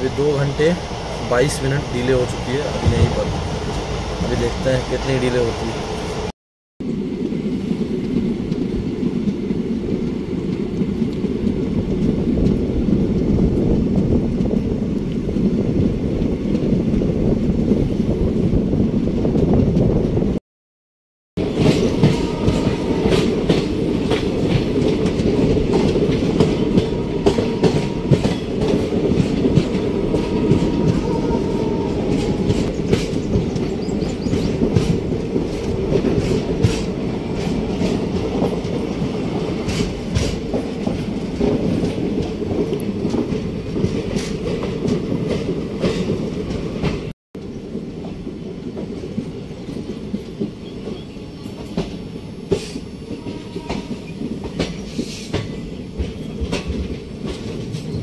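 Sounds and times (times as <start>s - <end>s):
train coach rumbling: 0.0s - 20.4s, 21.4s - 58.0s
wheels clicking over rail joints: 32.1s - 51.0s, 51.6s - 58.0s.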